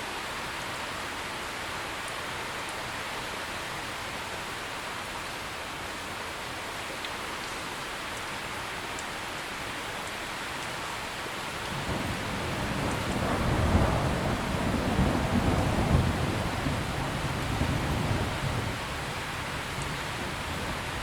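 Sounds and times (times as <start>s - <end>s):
heavy rain: 0.0s - 21.0s
thunder rolling: 11.6s - 21.0s.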